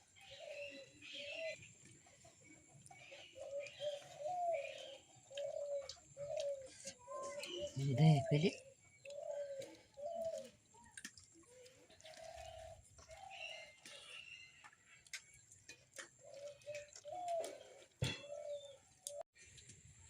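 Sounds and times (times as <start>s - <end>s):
birds cooing: 0.0s - 15.0s, 16.1s - 19.2s
bird chirps: 0.2s - 15.6s.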